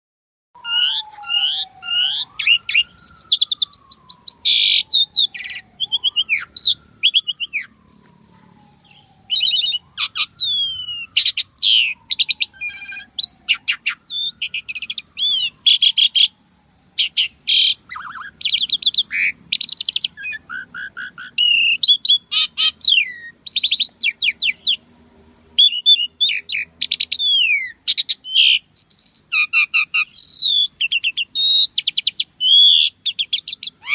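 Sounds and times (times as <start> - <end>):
starling singing: 0.6 - 33.9.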